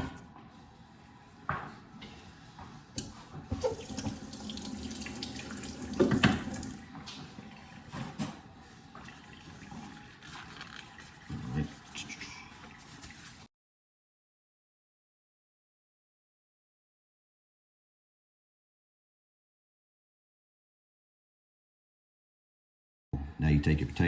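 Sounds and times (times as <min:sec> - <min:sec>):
water running from a tap: 0:03.6 - 0:06.8, 0:09.0 - 0:13.5.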